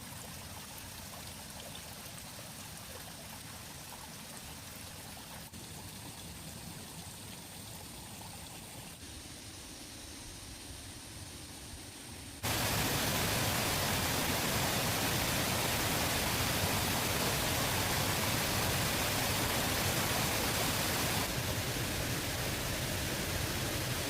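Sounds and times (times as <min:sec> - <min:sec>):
water rushing: 0:12.4 - 0:24.0.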